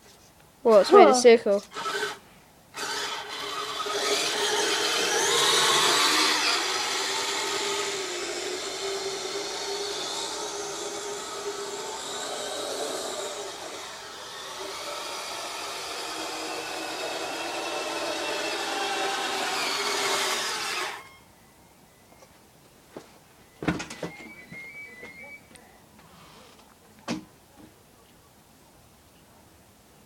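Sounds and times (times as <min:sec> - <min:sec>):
toy snowcat motor whining: 0:01.6 - 0:21.3.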